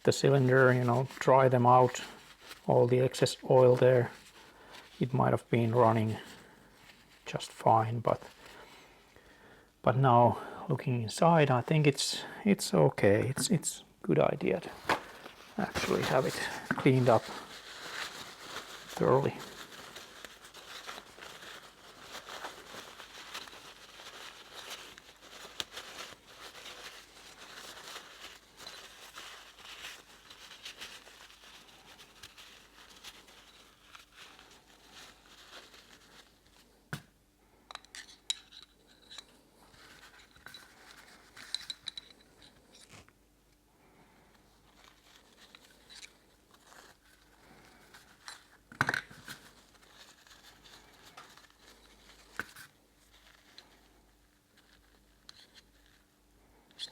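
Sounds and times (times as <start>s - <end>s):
rustling and scraping: 13.2s - 43.2s, 44.0s - 56.9s.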